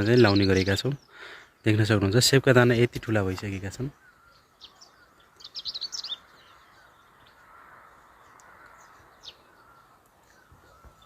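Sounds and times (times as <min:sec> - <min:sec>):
distant birds chirping: 0:00.0 - 0:11.0
low wavering background noise: 0:03.2 - 0:11.0.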